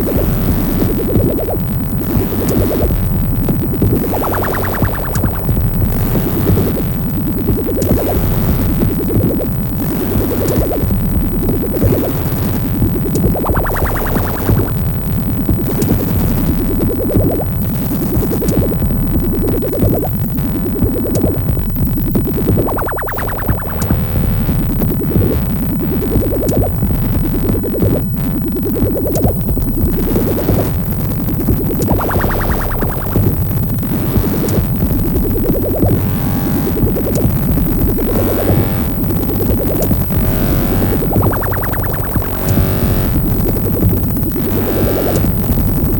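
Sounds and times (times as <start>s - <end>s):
steady low beat: 0.0s - 45.9s
synth pattern with filter sweeps: 0.0s - 45.9s
bright synth sweep: 3.9s - 14.9s, 31.7s - 45.4s.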